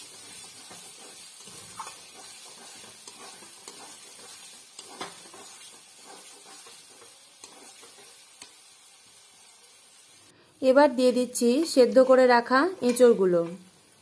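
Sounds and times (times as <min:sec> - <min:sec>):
metal spatula scraping a pan: 0:00.0 - 0:08.6
potatoes sizzling in a pan: 0:00.0 - 0:14.0.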